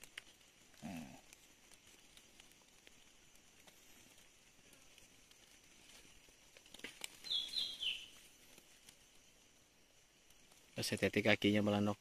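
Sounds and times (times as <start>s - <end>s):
faint outdoor background: 0.0s - 12.0s
high bird call: 7.2s - 8.1s.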